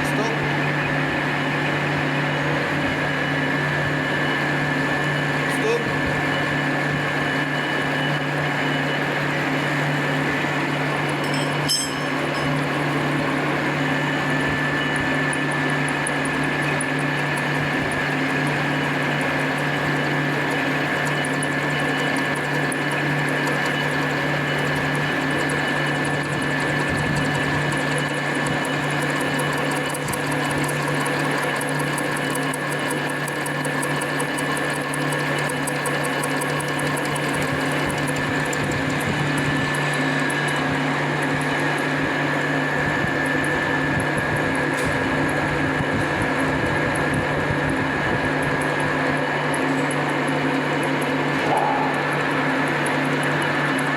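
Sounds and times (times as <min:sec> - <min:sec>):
metal lathe whining: 0:00.0 - 0:53.9.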